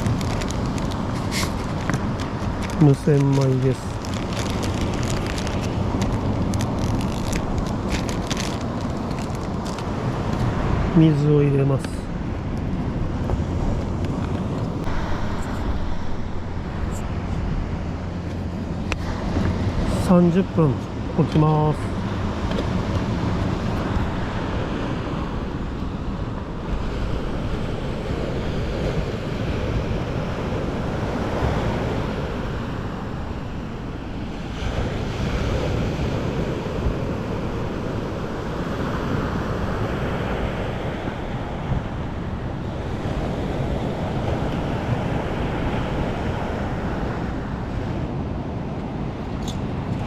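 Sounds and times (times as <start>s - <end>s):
sea surf breaking: 0.0s - 12.2s, 14.4s - 20.7s
wind rumbling on microphone: 0.0s - 50.0s.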